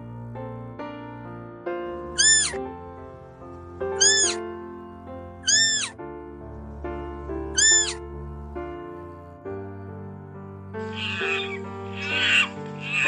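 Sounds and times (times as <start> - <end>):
background music: 0.0 - 13.0
kitten meowing: 2.2 - 2.6, 4.0 - 4.4, 5.4 - 6.0, 7.5 - 8.0, 10.8 - 13.0.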